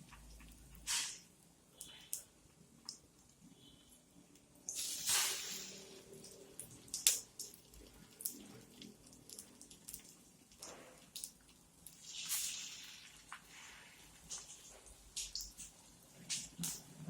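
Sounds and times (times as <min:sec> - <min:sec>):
food sizzling in oil: 0:00.1 - 0:01.4, 0:04.7 - 0:08.6, 0:11.8 - 0:15.8.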